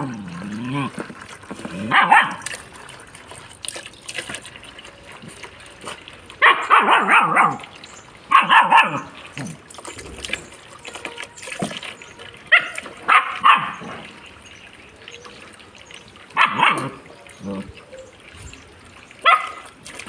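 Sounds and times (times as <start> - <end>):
trickling running water: 0.0 - 20.0
dog barking: 1.9 - 2.4, 6.4 - 7.6, 8.3 - 9.1, 12.5 - 13.8, 16.4 - 17.0, 19.2 - 19.6.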